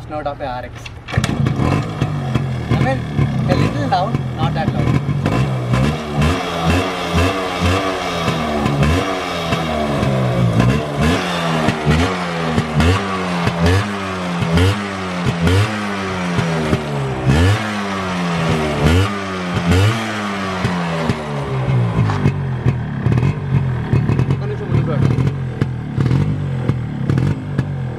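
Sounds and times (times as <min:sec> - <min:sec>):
motorcycle engine revving: 0:00.9 - 0:27.9.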